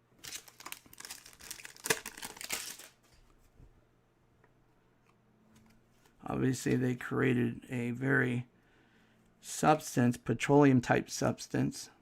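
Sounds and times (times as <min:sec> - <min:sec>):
trading cards and packaging crinkling: 0:00.2 - 0:03.2.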